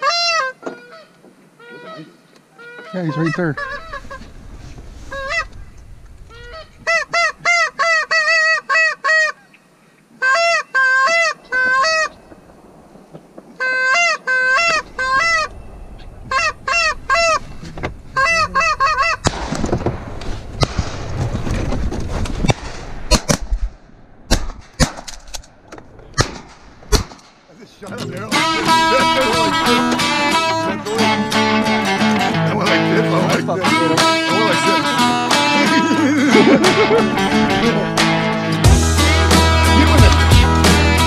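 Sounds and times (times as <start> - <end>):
goose honking: 0.0 - 4.4, 5.0 - 5.7, 6.3 - 9.6, 10.2 - 12.2, 13.6 - 19.3, 28.0 - 41.0
rushing noise: 11.4 - 24.7.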